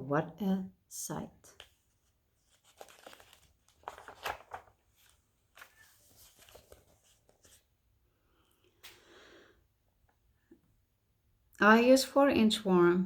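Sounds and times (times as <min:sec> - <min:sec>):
paper rustling and crinkling: 0:01.5 - 0:07.8.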